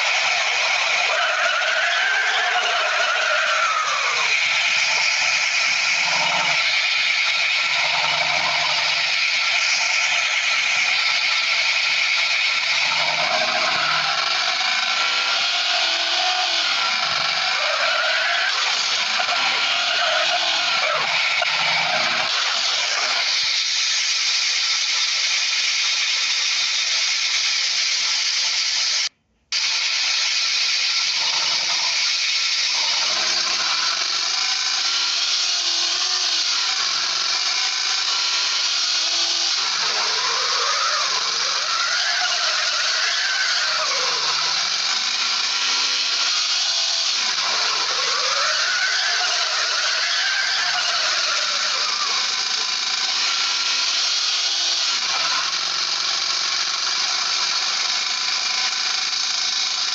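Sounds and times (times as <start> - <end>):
power tool running: 0.0 - 59.9.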